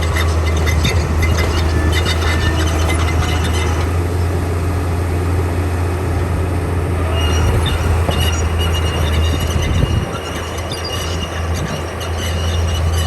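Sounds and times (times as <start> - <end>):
bulldozer diesel engine running: 0.0 - 13.0
tracks clanking: 0.0 - 13.0
thin high squeal: 7.1 - 13.0.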